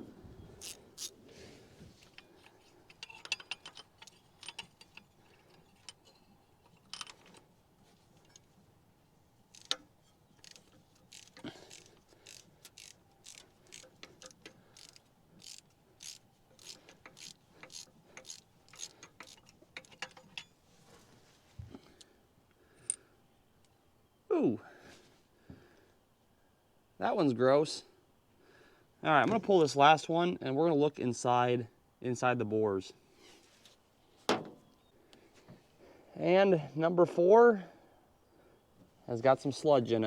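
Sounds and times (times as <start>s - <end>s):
ratchet wrench clicking: 0.6s - 1.1s, 9.5s - 20.5s.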